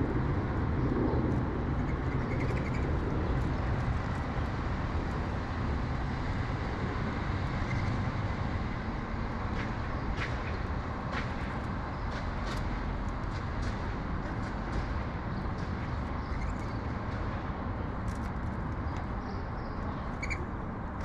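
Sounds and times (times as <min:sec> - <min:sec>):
city traffic rumble: 0:00.0 - 0:21.0.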